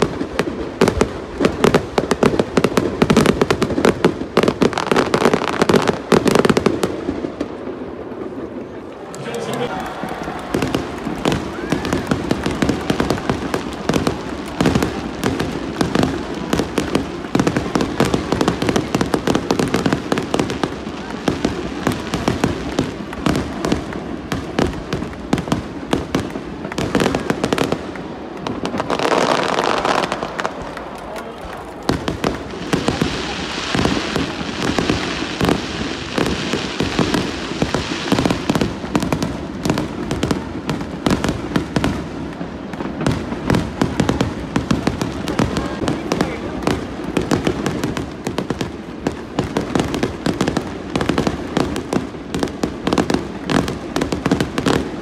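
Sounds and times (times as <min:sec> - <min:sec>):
fireworks bangs and crackles: 0:00.0 - 0:55.0
fireworks hissing: 0:31.9 - 0:42.2.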